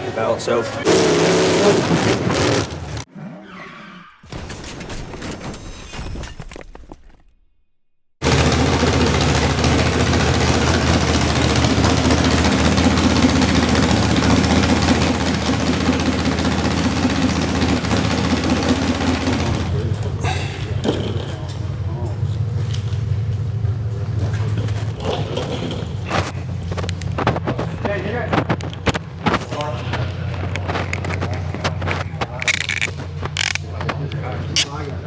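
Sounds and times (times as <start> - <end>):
car engines running loudly: 0.0 - 3.1, 8.2 - 35.0
mixed sounds: 24.5 - 35.0.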